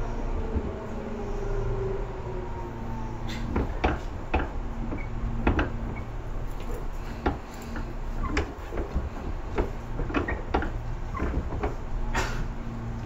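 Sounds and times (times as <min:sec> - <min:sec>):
train low rumble: 0:00.0 - 0:13.0
wheels clacking and knocking: 0:03.4 - 0:13.0.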